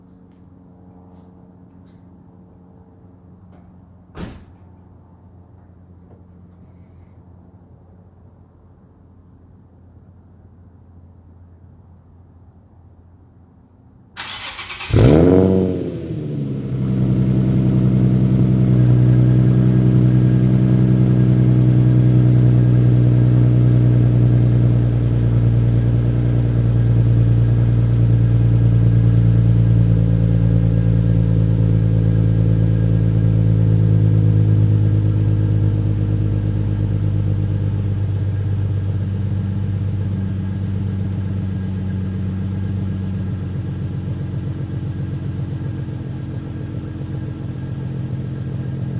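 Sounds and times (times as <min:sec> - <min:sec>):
car engine cold start: 0:14.2 - 0:17.7
engine revving: 0:14.2 - 0:25.2
car engine idling: 0:14.2 - 0:48.9.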